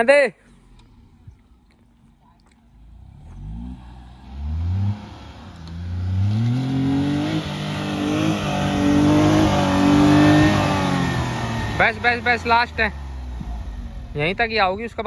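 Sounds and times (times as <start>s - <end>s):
car engine revving hard: 2.9s - 14.5s.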